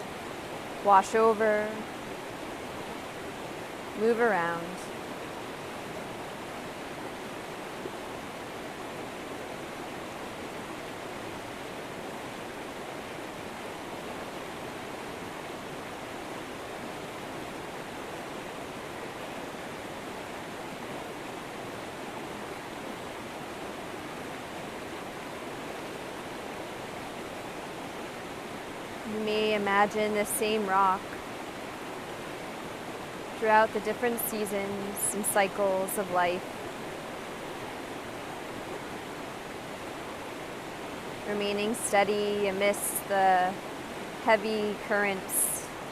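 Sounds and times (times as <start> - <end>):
river water rushing: 0.0 - 45.9.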